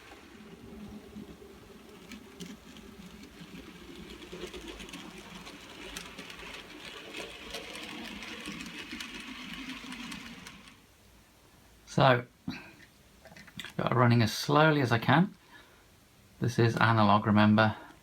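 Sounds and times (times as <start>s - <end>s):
model train wheels rattling on rails: 0.0s - 10.9s, 13.3s - 14.5s.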